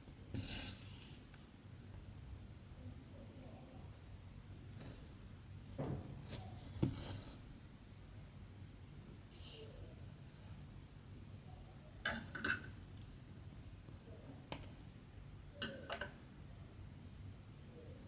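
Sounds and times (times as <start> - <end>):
light clicks and taps of tools: 14.5 - 14.8.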